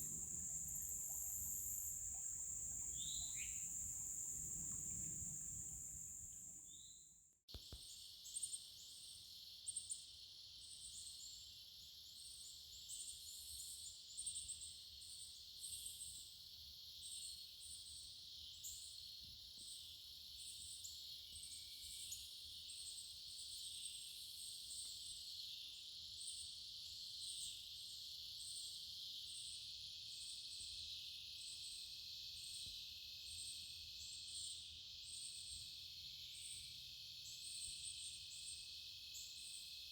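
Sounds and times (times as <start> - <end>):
cricket trill: 0.0 - 6.8
high hiss of insects: 0.0 - 6.8
short insect chirp: 0.0 - 7.0.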